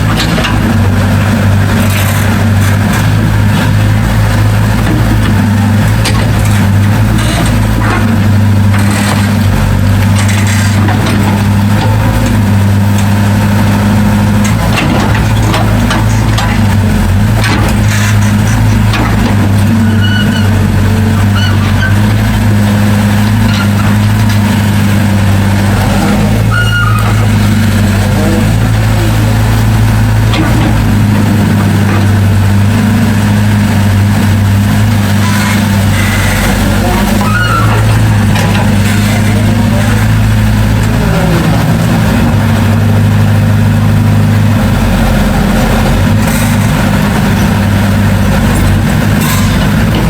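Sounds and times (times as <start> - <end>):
clanks and knocks: 0.0 - 4.0, 4.7 - 13.1, 14.4 - 22.6, 30.2 - 32.3, 36.5 - 40.9
heavy diesel engine humming: 0.0 - 50.0.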